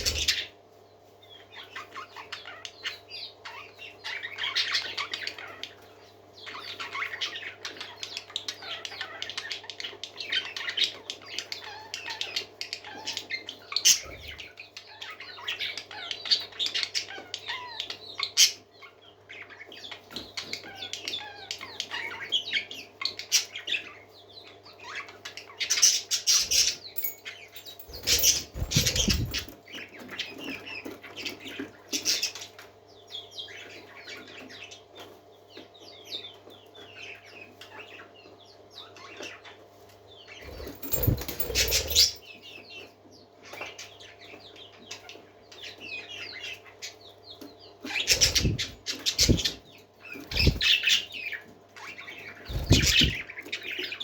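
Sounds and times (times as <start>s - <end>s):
parakeets chattering and chirping: 0.0s - 0.6s, 1.2s - 34.9s, 35.5s - 42.6s, 47.6s - 54.0s
wing flapping: 26.5s - 29.6s, 40.5s - 42.2s, 48.1s - 49.6s, 50.2s - 50.8s, 52.5s - 53.2s.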